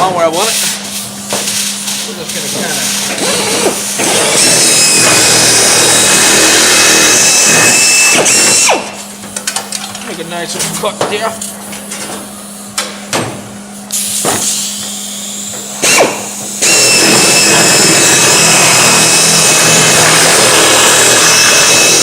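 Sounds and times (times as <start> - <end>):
power tool cutting sheet metal: 2.6 - 9.0, 15.8 - 22.0.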